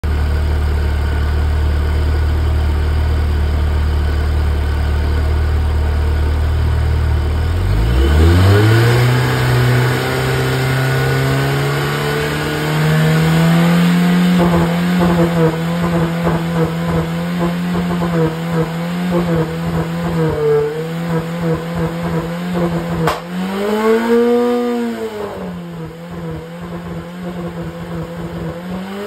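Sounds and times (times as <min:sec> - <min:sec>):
car engine revving: 0:05.9 - 0:29.0
exhaust backfire pops: 0:14.4 - 0:20.4, 0:21.1 - 0:23.6.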